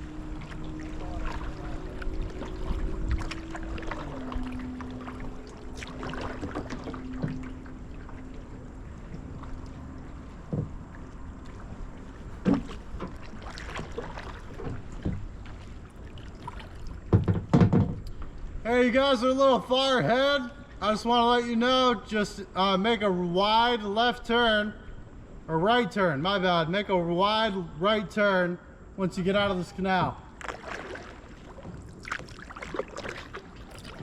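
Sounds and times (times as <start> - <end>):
steady hum: 0.0 - 16.8
paddle splashes: 0.0 - 18.6, 29.4 - 34.0
knocks on kayak hull: 17.1 - 18.0.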